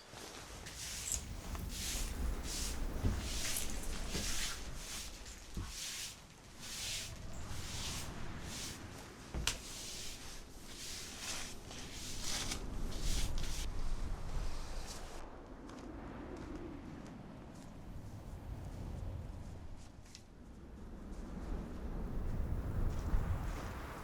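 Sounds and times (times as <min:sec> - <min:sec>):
footsteps crunching in snow: 0:00.0 - 0:13.7.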